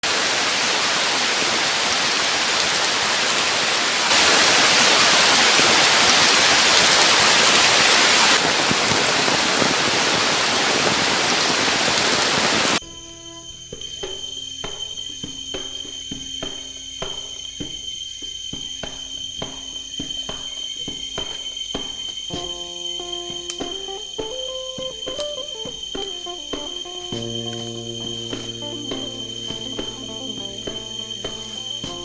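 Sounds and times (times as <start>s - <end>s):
heavy rain pouring: 0.0s - 12.8s, 22.3s - 32.0s
quiet music: 12.8s - 21.4s, 22.3s - 32.0s.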